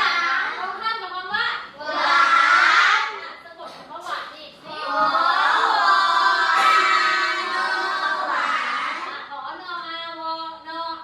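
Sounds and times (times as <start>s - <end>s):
children chanting in unison: 0.0s - 0.6s, 1.8s - 3.2s, 4.7s - 9.2s.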